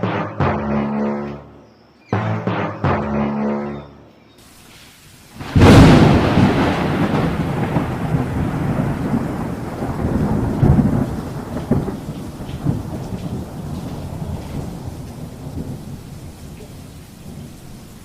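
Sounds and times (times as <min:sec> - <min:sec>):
loud crash: 0:05.4 - 0:08.5.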